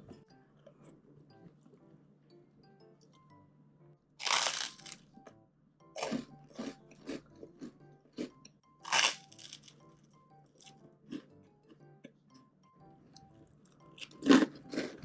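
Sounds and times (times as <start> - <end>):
crunching bites into toast: 4.2 - 5.0, 8.9 - 9.8.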